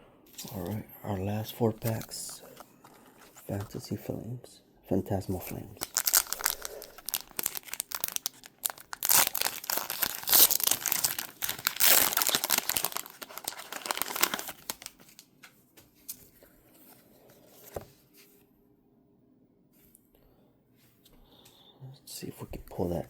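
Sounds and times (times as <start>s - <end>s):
foil wrappers crinkling and tearing: 5.8s - 15.3s.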